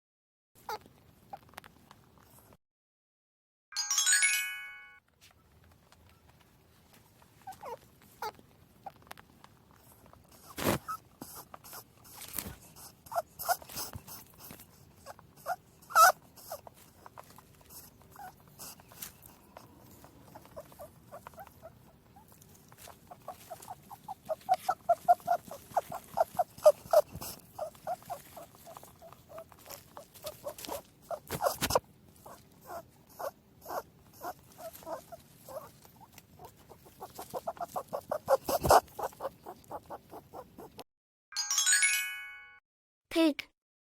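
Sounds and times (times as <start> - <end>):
rabbit squeaks and clicks: 5.9 - 40.8.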